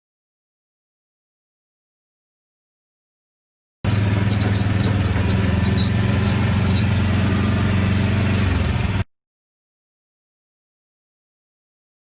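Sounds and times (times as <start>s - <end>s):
snow plow engine running: 3.9s - 9.1s.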